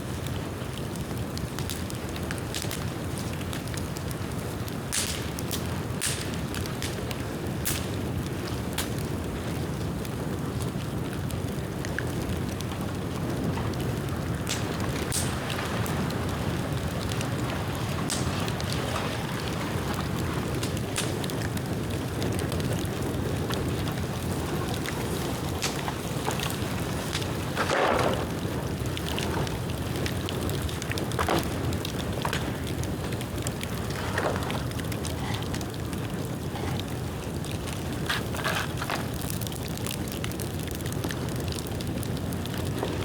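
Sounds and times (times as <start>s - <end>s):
bamboo popping and crackling: 0.0s - 43.0s
bonfire rushing: 0.0s - 43.0s.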